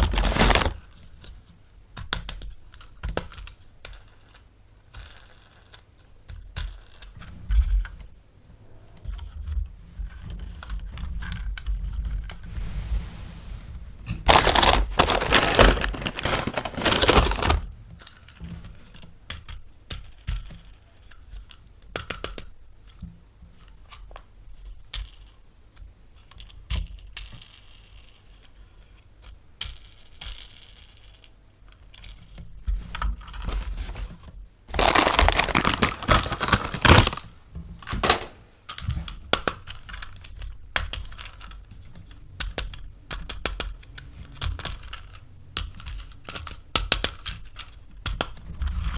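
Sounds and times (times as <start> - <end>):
packaging tearing and crinkling: 0.0 - 0.8, 14.3 - 17.7, 34.7 - 37.3, 37.9 - 38.4.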